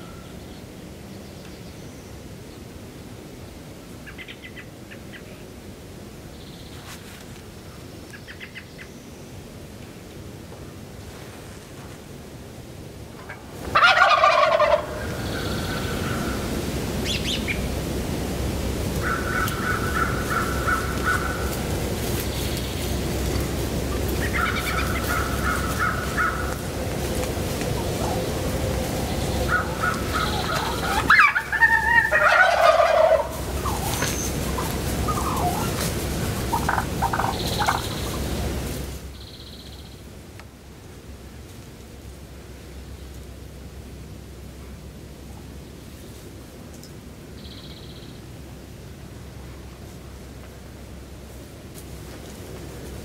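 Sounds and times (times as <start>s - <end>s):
turkey gobbling: 13.2s - 16.4s, 19.0s - 21.7s, 23.9s - 26.7s, 27.6s - 38.4s
distant bird calls: 13.2s - 17.7s, 19.0s - 38.5s, 47.3s - 48.2s.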